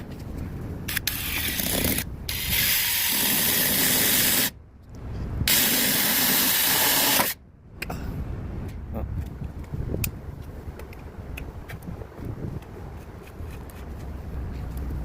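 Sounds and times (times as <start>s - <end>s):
multi-tool hissing buzz: 0.9s - 4.5s, 5.5s - 7.4s.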